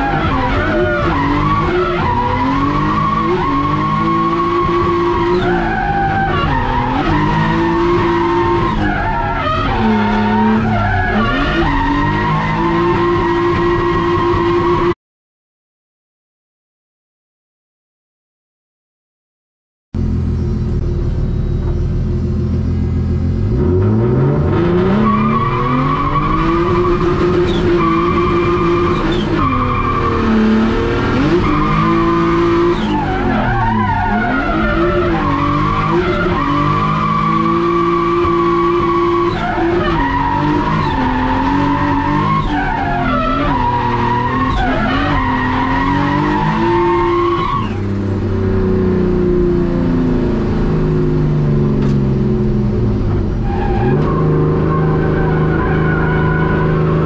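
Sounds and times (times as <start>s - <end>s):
car engine revving: 0.0s - 15.0s, 20.0s - 57.0s.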